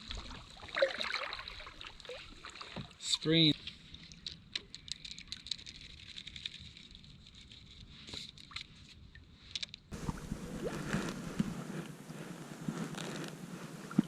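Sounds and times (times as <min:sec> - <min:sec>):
water lapping: 0:00.0 - 0:04.3, 0:09.9 - 0:14.0
clicks and knocks around kayak: 0:03.6 - 0:14.0.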